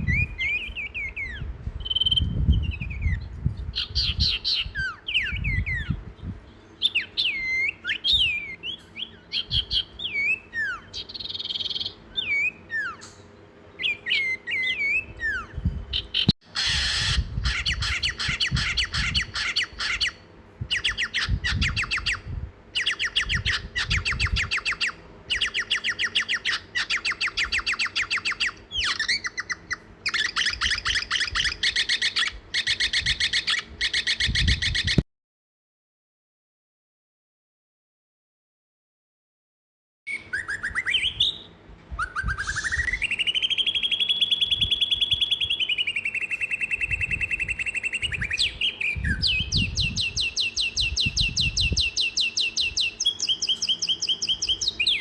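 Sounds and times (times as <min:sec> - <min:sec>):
buzzy bird trills: 0:00.0 - 0:35.0, 0:40.1 - 0:55.0
bird whistling downward slurs: 0:06.8 - 0:19.2, 0:40.1 - 0:55.0.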